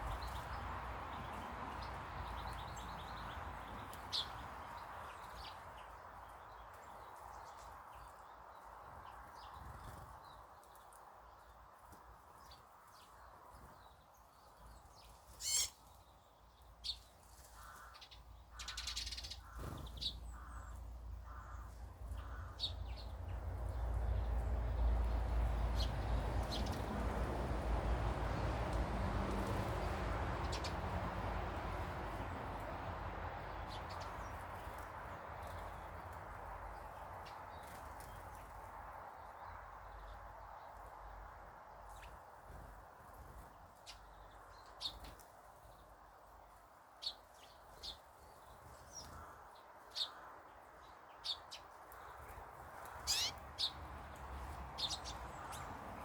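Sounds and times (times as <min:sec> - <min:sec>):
birds cawing calls: 0:15.4 - 0:15.8, 0:17.6 - 0:23.0, 0:53.0 - 0:53.8.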